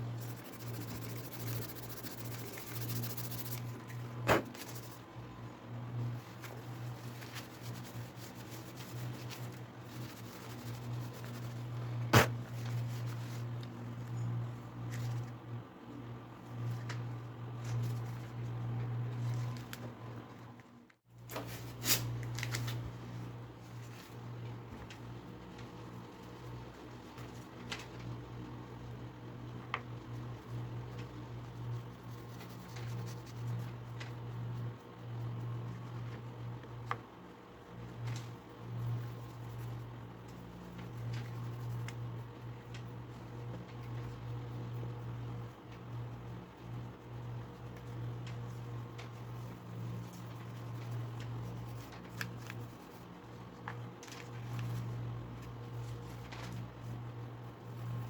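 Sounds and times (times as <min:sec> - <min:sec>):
low steady hum: 0:00.0 - 0:58.0
sandpaper scratching on handle: 0:00.2 - 0:03.7.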